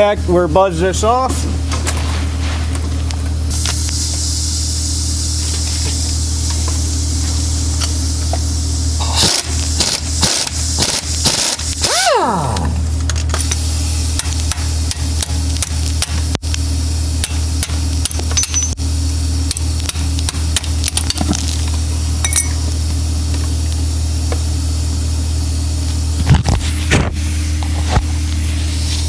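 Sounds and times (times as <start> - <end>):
tools clicking and knocking: 17.2 - 18.8.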